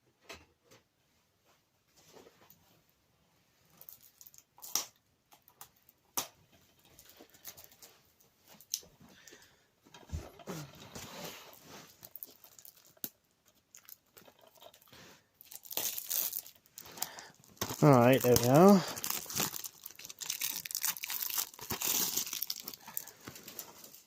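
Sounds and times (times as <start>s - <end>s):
plastic wrap scratching and rustling: 10.4s - 24.0s.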